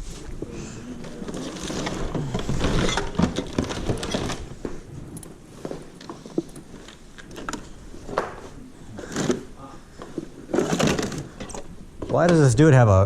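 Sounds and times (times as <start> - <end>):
hard objects clattering and clinking: 1.0 - 12.2.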